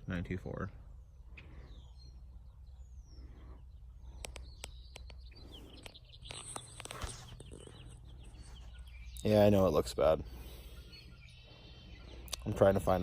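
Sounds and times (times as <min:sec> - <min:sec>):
bird chirps: 0:00.8 - 0:13.0
sharp clicks: 0:04.1 - 0:07.5.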